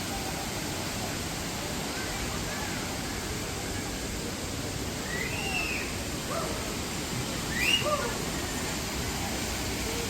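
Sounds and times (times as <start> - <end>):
waterfall rushing: 0.0 - 10.0
high whistle-like calls: 5.0 - 6.0, 7.5 - 8.0.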